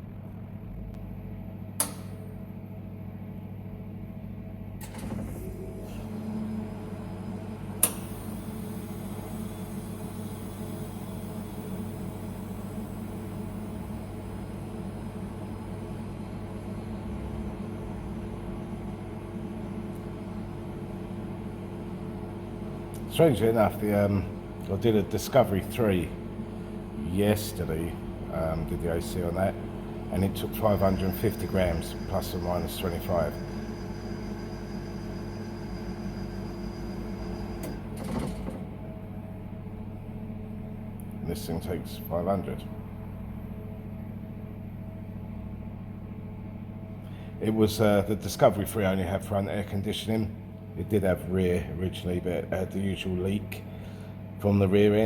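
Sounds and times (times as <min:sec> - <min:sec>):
machine mechanical hum: 0:00.0 - 0:55.0
high whine: 0:27.2 - 0:37.8.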